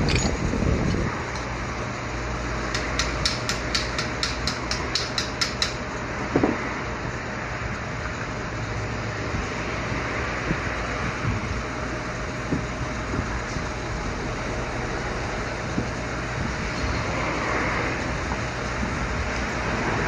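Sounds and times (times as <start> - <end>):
sharp rapid ticks: 2.7 - 5.8.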